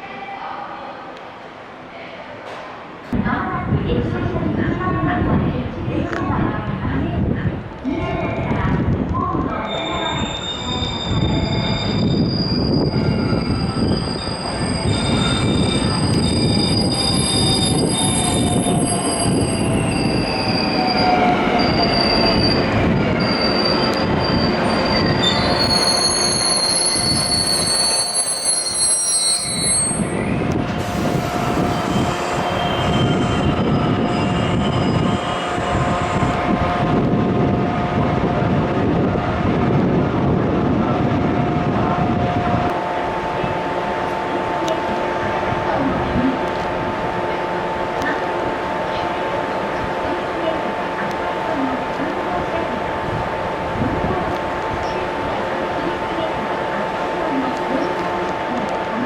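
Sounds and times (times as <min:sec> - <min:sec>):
train rumble and whine: 0:00.0 - 0:59.0
train wheels and brakes squealing: 0:09.6 - 0:36.3.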